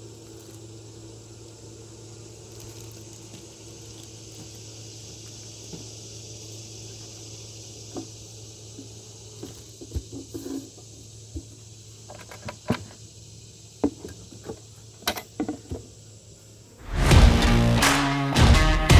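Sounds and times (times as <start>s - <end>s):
loud music: 16.8s - 18.9s
steady low hum: 16.8s - 18.9s.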